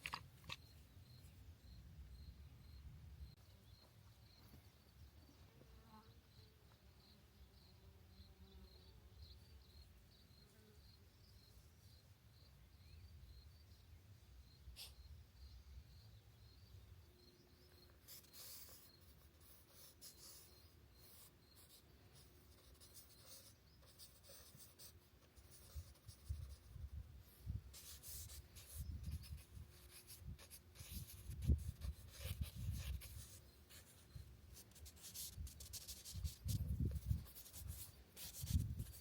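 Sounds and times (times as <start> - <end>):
pencil scratching on paper: 18.1 - 26.7, 27.7 - 39.0.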